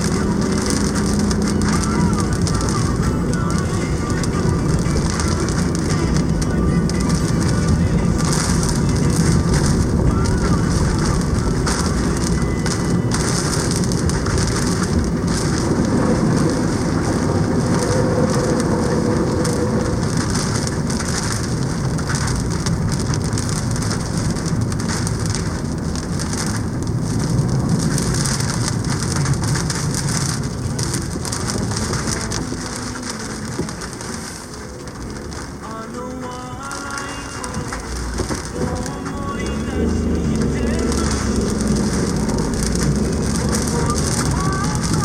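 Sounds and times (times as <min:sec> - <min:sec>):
strong low wind: 0:00.0 - 0:35.6
heavy rain pouring: 0:00.0 - 0:45.0.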